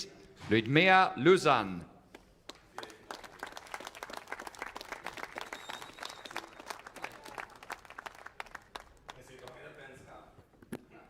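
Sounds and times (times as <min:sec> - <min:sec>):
crowd applauding: 0:02.5 - 0:09.8.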